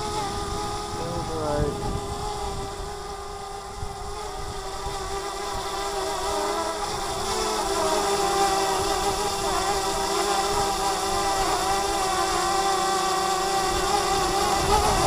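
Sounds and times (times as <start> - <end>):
wind buffeting microphone: 0.0 - 6.1, 13.6 - 15.0
drone propellers whining: 0.0 - 15.0.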